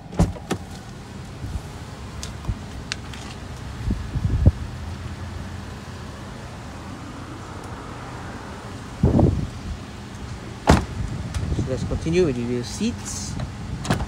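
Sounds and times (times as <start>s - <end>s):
dull thump: 10.6s - 11.0s.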